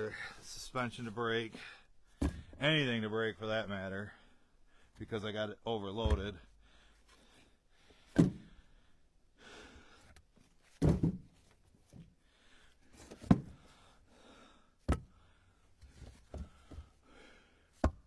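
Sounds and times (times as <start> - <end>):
firewood thunking onto stack: 2.2 - 2.6, 8.2 - 8.5, 10.8 - 11.4.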